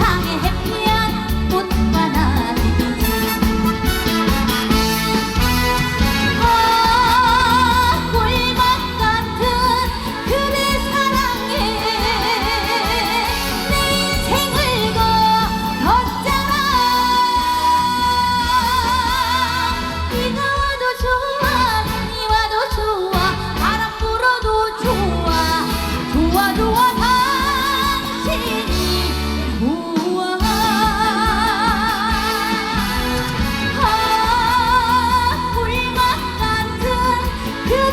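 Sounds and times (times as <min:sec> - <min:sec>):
amplified musical accompaniment: 0:00.0 - 0:20.7
woman singing: 0:00.0 - 0:37.9.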